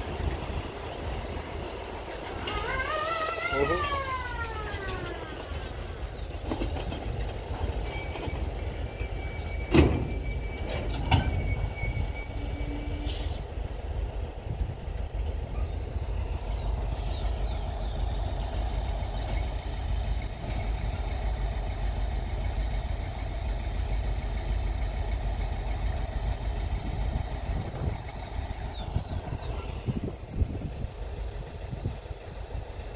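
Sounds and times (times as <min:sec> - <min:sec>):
train cars rumbling on track: 0:00.0 - 0:32.9
thin high squeal: 0:02.5 - 0:05.3, 0:07.8 - 0:13.4.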